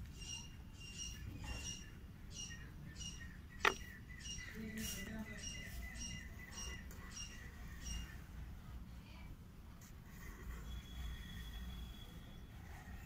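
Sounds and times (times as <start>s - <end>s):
small bird chirping: 0.0s - 8.3s.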